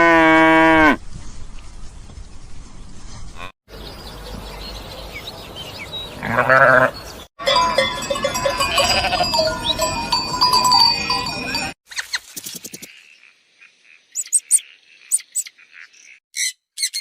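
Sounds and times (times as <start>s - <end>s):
farm animals calling: 4.8s - 12.1s
ringing tones: 7.4s - 11.8s.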